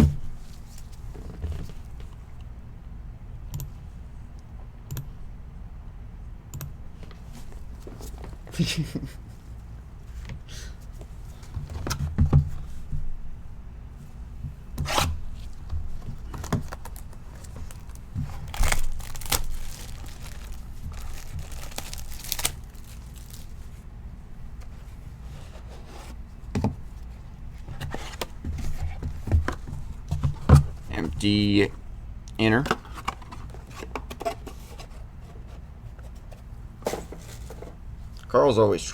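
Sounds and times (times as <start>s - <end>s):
clicks and rustles: 15.4s - 23.6s
packaging ripping and crinkling: 16.1s - 23.7s.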